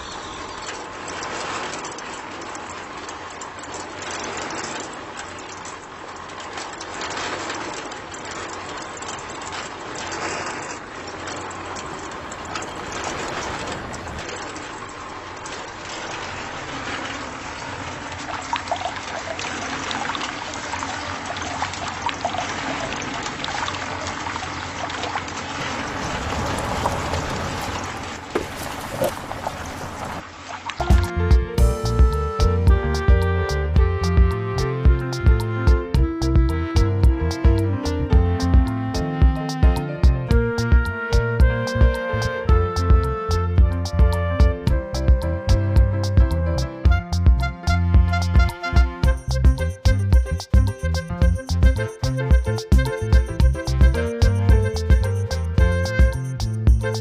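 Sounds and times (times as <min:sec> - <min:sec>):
water gushing: 0:00.0 - 0:31.9.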